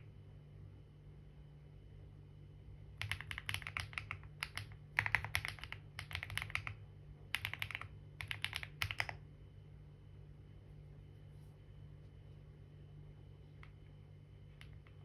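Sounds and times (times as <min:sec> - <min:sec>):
typing on computer keyboard: 0:03.0 - 0:09.2.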